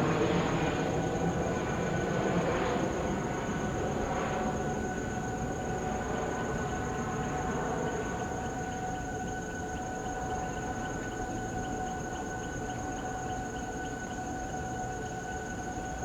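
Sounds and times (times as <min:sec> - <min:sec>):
jet engines running: 0:00.0 - 0:08.5.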